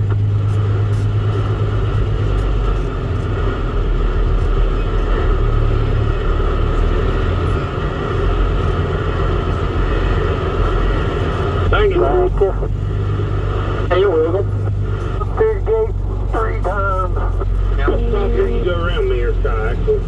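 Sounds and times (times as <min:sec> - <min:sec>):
diesel engine rumbling: 0:00.0 - 0:20.0.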